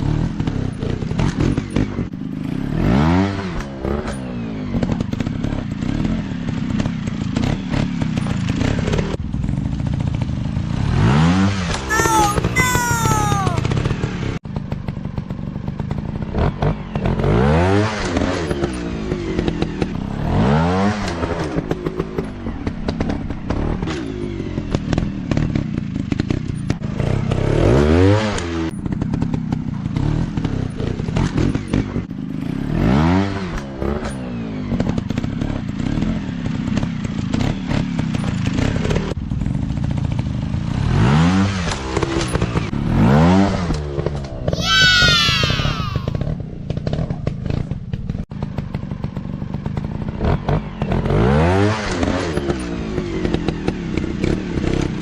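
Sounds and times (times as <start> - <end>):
dirt bike engines revving: 44.6 - 46.2.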